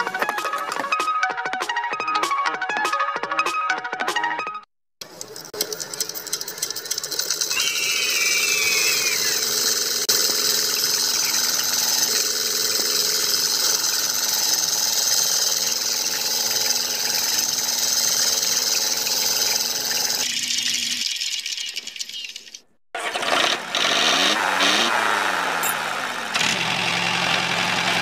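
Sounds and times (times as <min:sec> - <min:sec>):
small motor whirring: 0:05.2 - 0:28.0.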